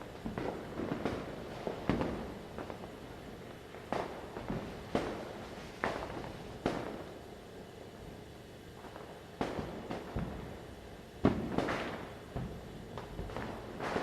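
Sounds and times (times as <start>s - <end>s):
background firecrackers crackling: 0.0s - 14.0s
firecracker bangs: 11.3s - 12.2s, 13.3s - 14.0s.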